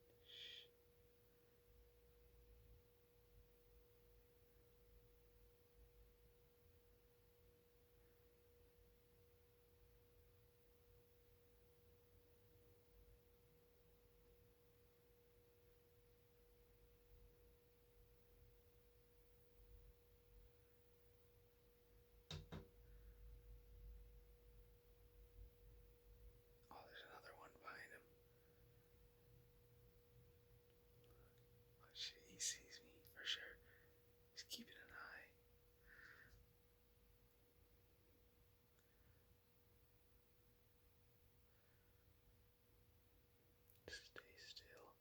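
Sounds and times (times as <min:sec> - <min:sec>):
faint steady hum: 0:00.0 - 0:45.0
sharp tap: 0:22.3 - 0:22.7.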